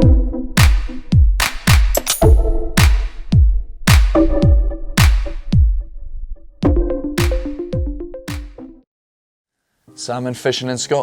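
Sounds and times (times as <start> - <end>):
electronic music with drum machine: 0.0 - 5.8, 6.6 - 8.8.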